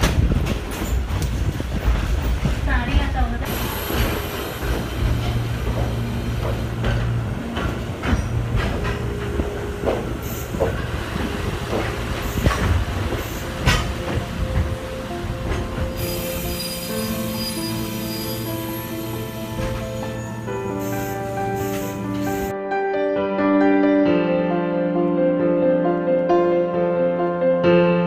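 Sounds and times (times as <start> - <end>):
wheels clacking over rail joints: 0.0 - 16.2
train running gear rumble: 0.0 - 22.5
wheel squeals: 16.0 - 18.9.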